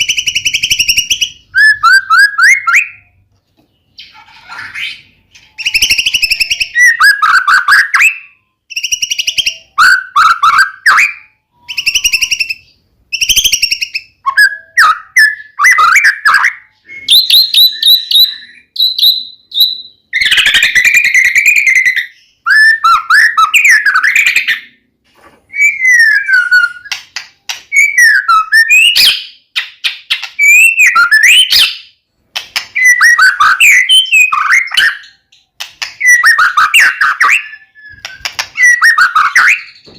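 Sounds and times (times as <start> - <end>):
songbird singing: 0.0 - 24.9.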